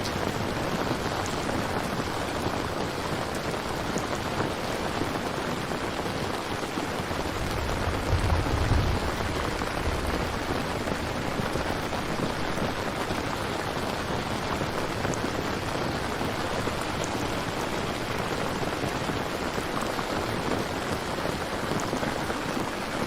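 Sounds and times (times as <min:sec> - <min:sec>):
steady rain falling: 0:00.0 - 0:23.0
low rumble: 0:07.4 - 0:11.7.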